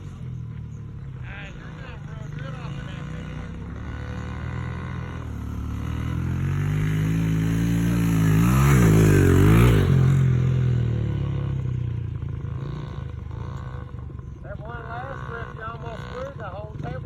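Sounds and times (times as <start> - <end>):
dirt bike engine revving past: 1.0 - 17.0.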